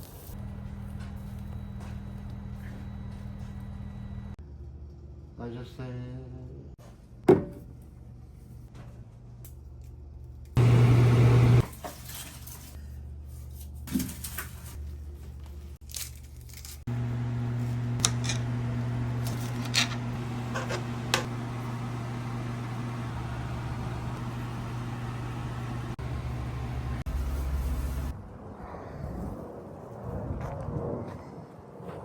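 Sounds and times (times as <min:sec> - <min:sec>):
machine humming: 0:10.6 - 0:11.7, 0:16.9 - 0:28.1.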